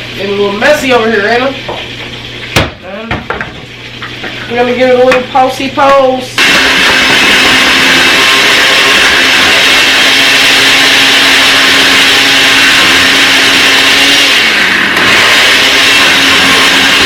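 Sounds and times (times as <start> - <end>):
blender motor running: 4.7 - 17.0.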